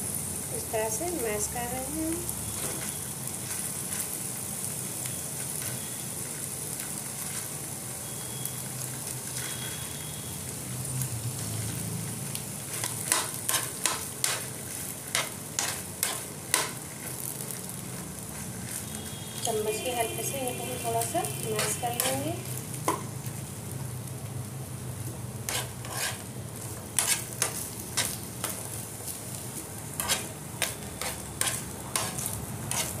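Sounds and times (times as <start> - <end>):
food sizzling in hot oil: 0.0 - 33.0
spoon clacking against pan: 30.0 - 33.0.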